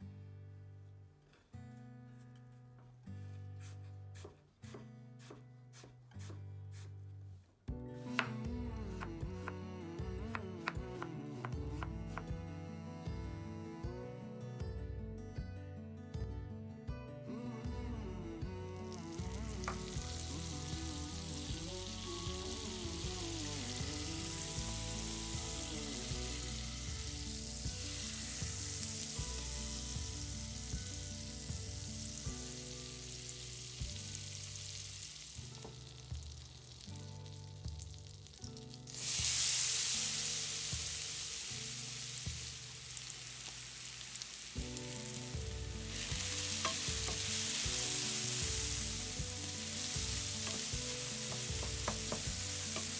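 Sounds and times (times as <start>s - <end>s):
apples sizzling in butter: 18.7s - 52.9s
butter sizzling in frying pan: 18.8s - 52.9s
spatula stirring: 42.3s - 52.9s.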